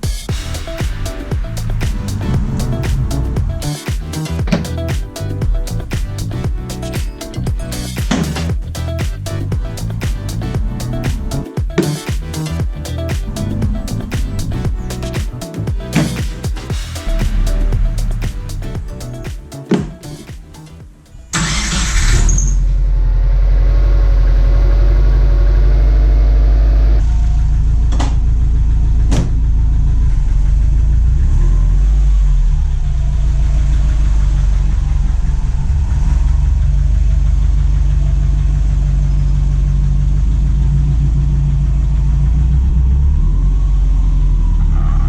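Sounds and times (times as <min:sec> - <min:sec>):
car engine idling: 0:00.0 - 0:19.3.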